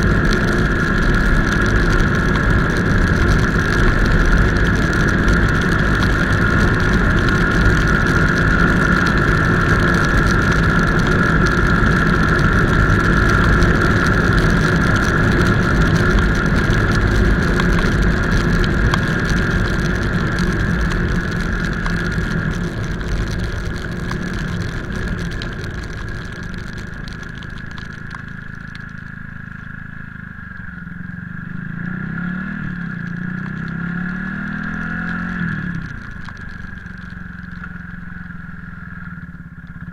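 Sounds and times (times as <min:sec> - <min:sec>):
motorcycle engine rumble: 0:00.0 - 0:39.9
wind and road noise: 0:00.0 - 0:39.9.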